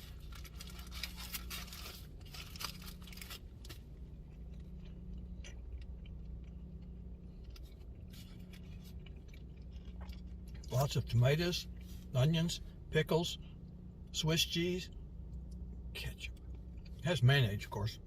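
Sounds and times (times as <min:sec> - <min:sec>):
wrapper paper crinkling: 0:00.0 - 0:03.8
steady low hum: 0:00.0 - 0:18.0.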